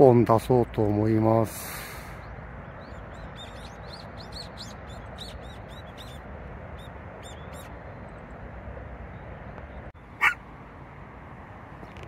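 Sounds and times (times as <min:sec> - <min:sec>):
small bird chirping: 0:02.3 - 0:08.3.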